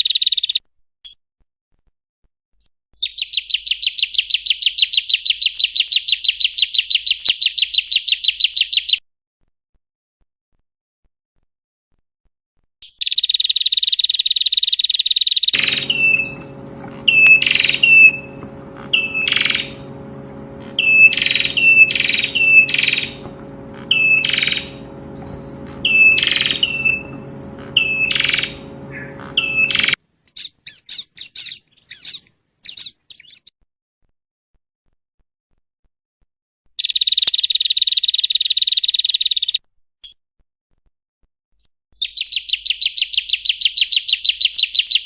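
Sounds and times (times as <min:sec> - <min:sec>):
bird buzzy trill and chirps: 0:13.0 - 0:33.5
faint ticking: 0:15.6 - 0:30.0
steady electrical hum: 0:15.6 - 0:30.0.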